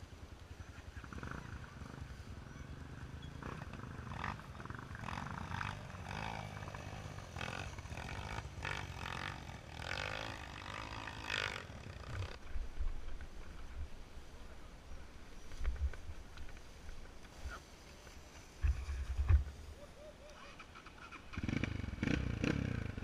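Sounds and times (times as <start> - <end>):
dirt bike engine revving: 1.1 - 12.4, 20.6 - 23.0.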